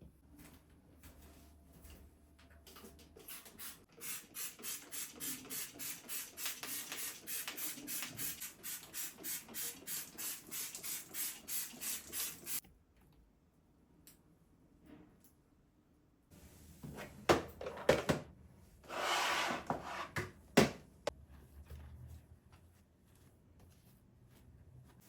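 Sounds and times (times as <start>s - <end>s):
brush scrubbing a hard surface: 18.9s - 20.2s.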